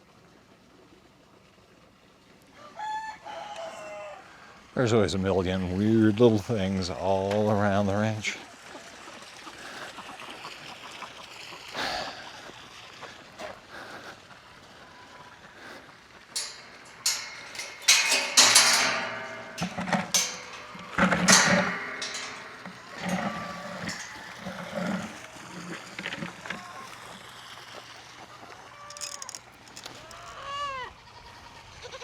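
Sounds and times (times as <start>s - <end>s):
sharp clicks and rustles: 16.4s - 26.6s, 28.9s - 30.2s.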